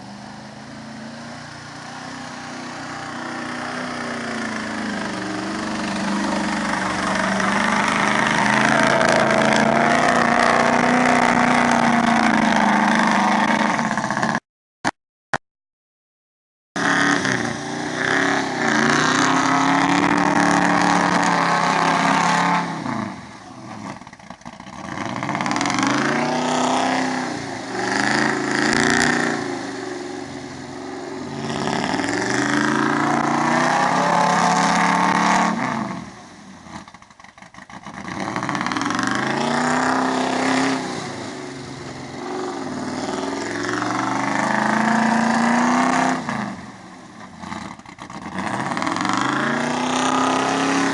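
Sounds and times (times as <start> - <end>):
truck engine revving hard: 0.0 - 14.4, 16.8 - 37.0, 37.6 - 50.9.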